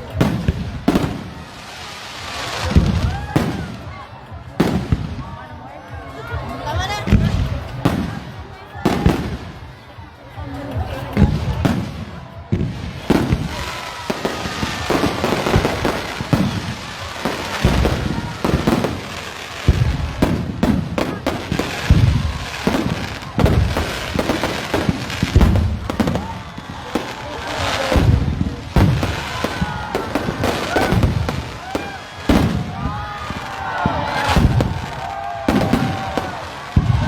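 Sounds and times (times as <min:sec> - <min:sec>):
booming firework explosions: 0:00.0 - 0:01.5, 0:11.2 - 0:37.0
crackling firework bursts: 0:00.0 - 0:04.0, 0:11.2 - 0:37.0.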